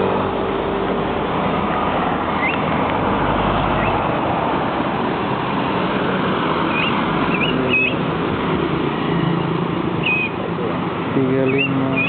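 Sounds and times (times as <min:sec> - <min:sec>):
traffic noise: 0:00.0 - 0:12.0
small bird chirping: 0:02.4 - 0:02.7, 0:06.7 - 0:08.0, 0:10.0 - 0:10.4, 0:11.4 - 0:12.0.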